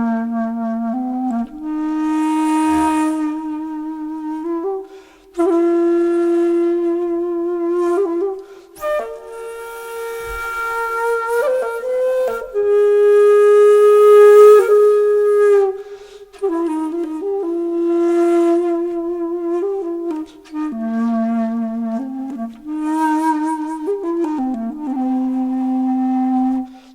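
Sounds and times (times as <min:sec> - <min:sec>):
solo flute-like wind instrument: 0:00.0 - 0:26.9.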